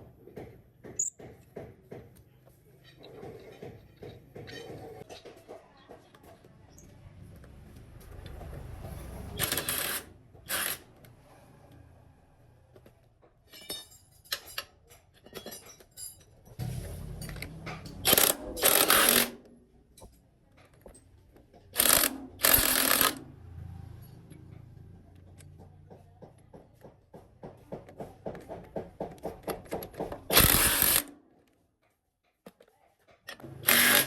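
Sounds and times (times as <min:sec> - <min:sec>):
tools knocking on metal: 0:00.0 - 0:02.2, 0:02.9 - 0:06.5, 0:24.2 - 0:30.3.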